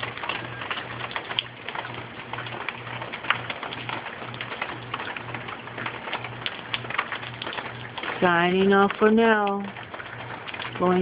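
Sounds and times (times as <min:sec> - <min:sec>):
light rain and dripping water: 0:00.0 - 0:11.0.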